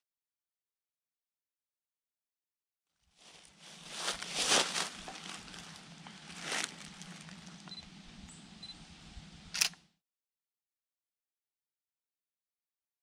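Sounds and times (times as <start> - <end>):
footsteps crunching on forest path: 3.2 - 7.8.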